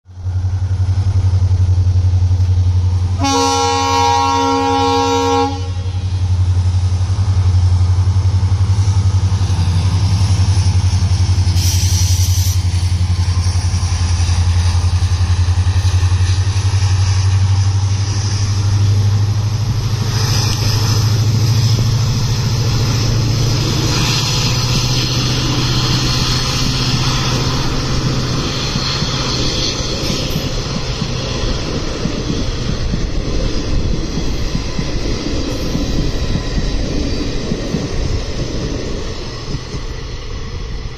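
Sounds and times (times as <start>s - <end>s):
diesel locomotive engine drone: 0.0s - 40.9s
train wheels on rails: 0.1s - 40.9s
train horn: 3.1s - 6.1s.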